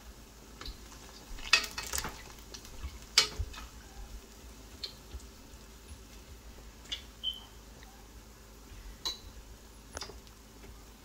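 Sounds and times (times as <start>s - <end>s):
fritters sizzling in hot oil: 0.0s - 11.0s.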